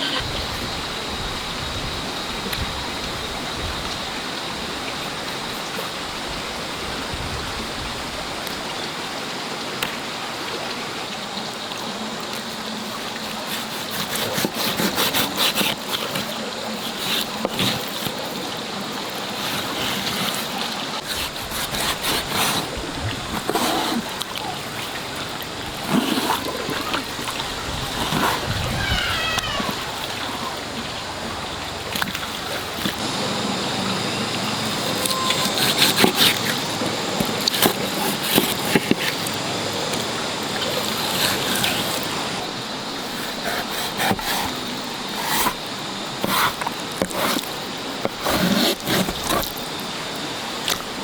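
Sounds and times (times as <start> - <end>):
running water rushing: 0.0 - 51.0
splashing and knocks: 19.1 - 33.1.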